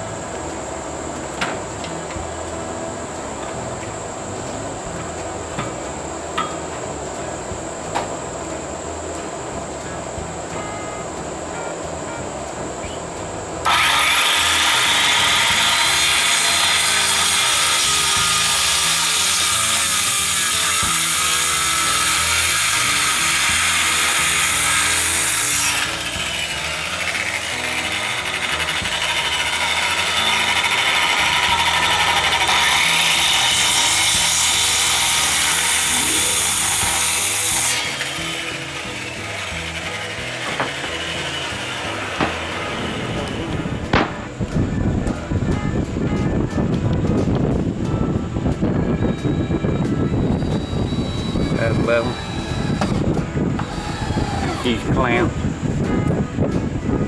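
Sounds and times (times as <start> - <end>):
power tool cutting wood: 13.6 - 44.4, 48.9 - 55.6.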